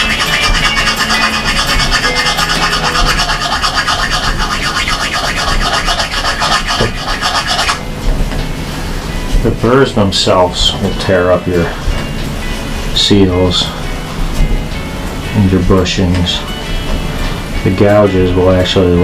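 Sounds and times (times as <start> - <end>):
file scratching metal: 0.0 - 7.8.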